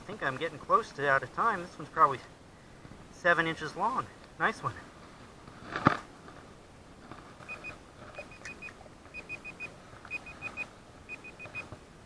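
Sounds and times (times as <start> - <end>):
timer alarm beeping: 7.5 - 11.7.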